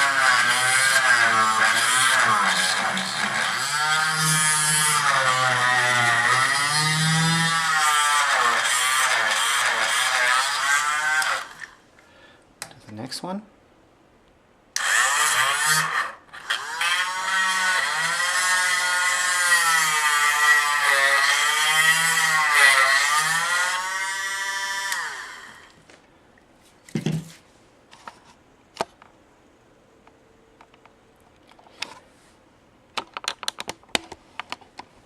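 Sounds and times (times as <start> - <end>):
chainsaw sharpener grinding: 0.0 - 11.8, 14.8 - 25.8.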